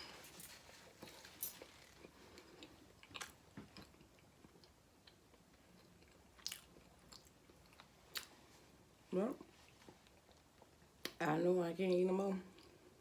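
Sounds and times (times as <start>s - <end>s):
person chewing food: 1.9s - 8.4s, 9.7s - 11.0s.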